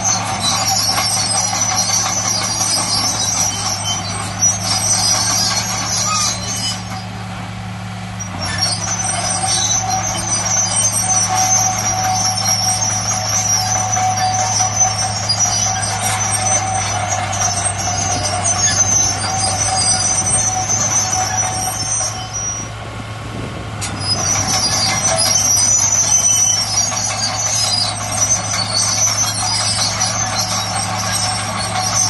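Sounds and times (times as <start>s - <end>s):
high-pitched metallic squealing: 0.0s - 7.2s, 8.1s - 22.8s, 23.8s - 32.0s
diesel machinery engine drone: 0.0s - 32.0s.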